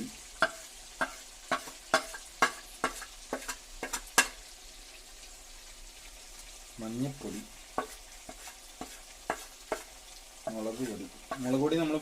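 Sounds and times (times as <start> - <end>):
frying sizzle: 0.0 - 12.0
spoon knocking against pot: 0.4 - 4.4.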